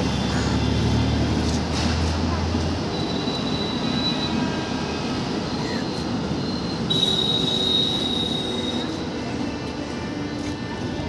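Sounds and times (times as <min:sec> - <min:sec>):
high wheel squeal: 0:02.8 - 0:09.1.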